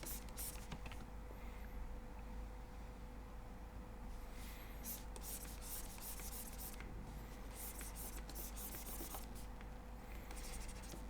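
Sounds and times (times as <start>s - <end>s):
stylus scratching on tablet: 0.0s - 0.7s, 4.9s - 6.8s, 7.5s - 9.5s, 10.4s - 11.0s
faint steady hum: 0.0s - 11.0s.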